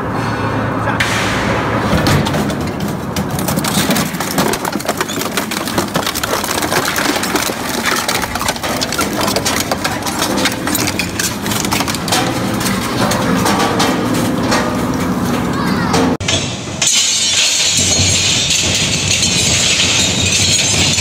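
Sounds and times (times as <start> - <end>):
crushing machine motor hum: 1.6 - 16.2
scrap cracking and snapping: 2.0 - 15.5.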